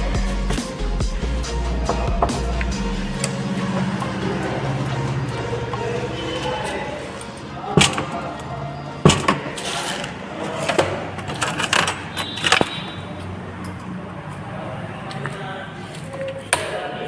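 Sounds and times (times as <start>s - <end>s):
metal tools clinking and knocking: 5.2s - 14.0s.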